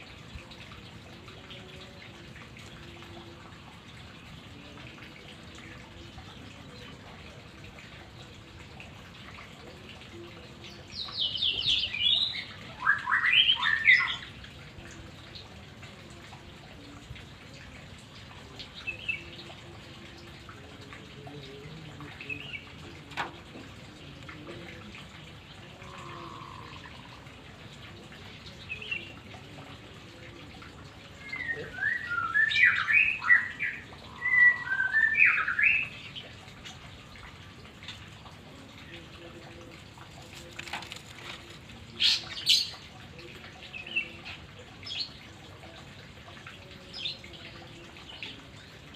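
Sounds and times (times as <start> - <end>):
running water: 0.0 - 48.9
songbird singing: 10.1 - 16.0, 16.7 - 48.9
bird singing whistled song: 11.2 - 14.3, 31.2 - 36.0.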